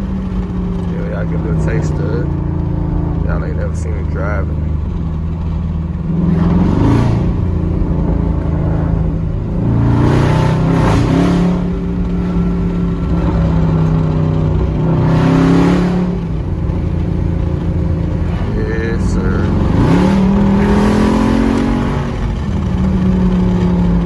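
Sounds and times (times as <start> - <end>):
truck engine accelerating: 0.0 - 24.0.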